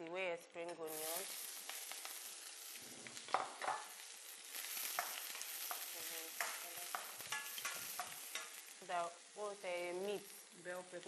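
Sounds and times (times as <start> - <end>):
onions sizzling in butter: 0.7 - 11.0.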